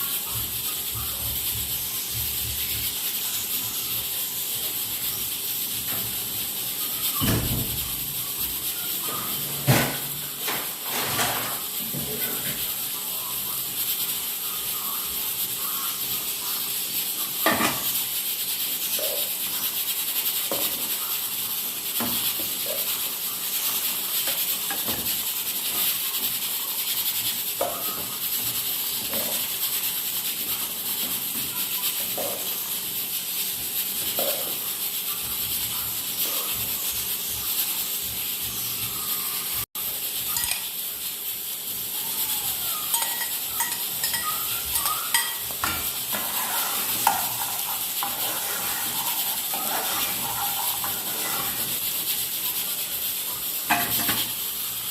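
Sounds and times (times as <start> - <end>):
food sizzling in a pot: 0.0 - 54.9
spoon stirring and scraping: 40.2 - 40.8, 42.8 - 54.5
utensil clinking against pan: 40.4 - 40.7, 42.9 - 51.7.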